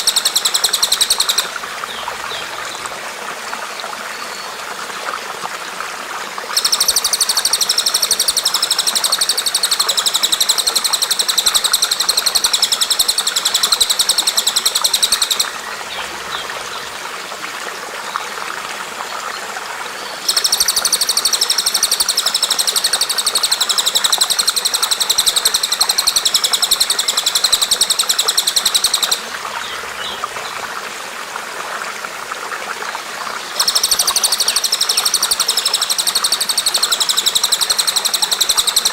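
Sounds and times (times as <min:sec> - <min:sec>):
bird high-pitched trill: 0:00.0 - 0:01.5, 0:06.6 - 0:15.5, 0:20.3 - 0:29.2, 0:33.6 - 0:38.9
running water: 0:00.0 - 0:38.9.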